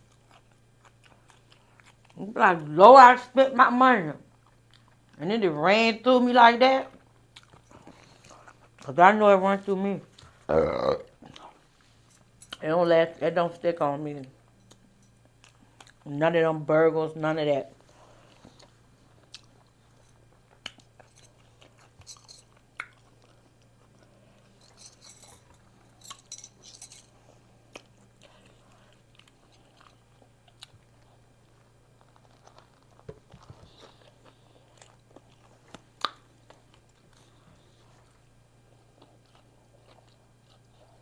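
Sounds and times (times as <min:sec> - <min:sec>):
person chewing with wet smacks: 0:00.0 - 0:02.2, 0:04.3 - 0:05.2, 0:06.9 - 0:08.9, 0:14.3 - 0:16.1, 0:18.2 - 0:24.7, 0:27.6 - 0:41.0
steady low hum: 0:00.0 - 0:41.0.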